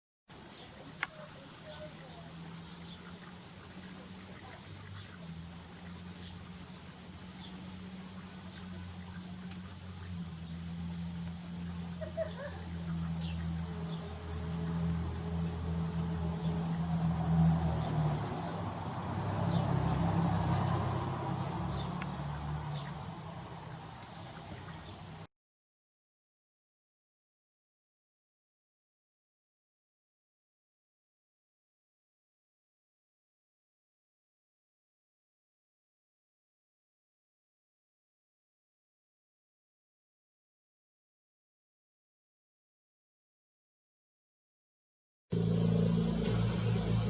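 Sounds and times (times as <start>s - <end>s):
crickets chirping: 0.3s - 25.3s, 45.4s - 47.0s
low rumble: 45.3s - 47.0s.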